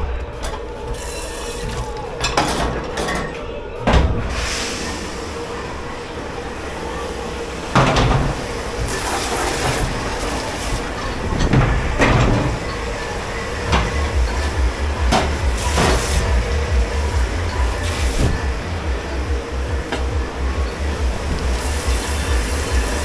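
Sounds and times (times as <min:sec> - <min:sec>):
dishes and racks knocking: 0:00.0 - 0:04.6, 0:07.7 - 0:23.0
steady machine noise: 0:00.0 - 0:23.0
low throbbing hum: 0:13.6 - 0:23.0.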